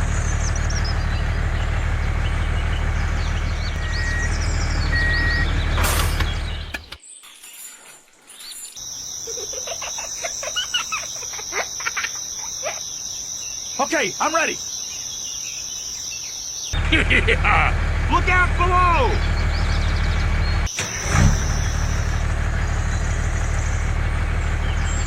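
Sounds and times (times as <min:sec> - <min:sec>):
engine-like rumble: 0:00.0 - 0:07.0, 0:16.8 - 0:25.0
birds chirping: 0:00.0 - 0:25.0
insects droning: 0:03.1 - 0:19.9, 0:20.7 - 0:24.0.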